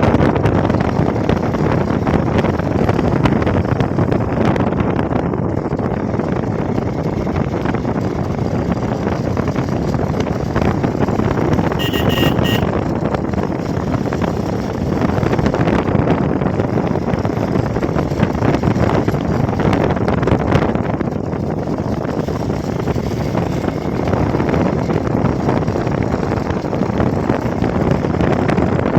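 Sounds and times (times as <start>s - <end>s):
motorcycle engine and wind: 0.0s - 28.9s
horn short beeps: 11.8s - 12.8s.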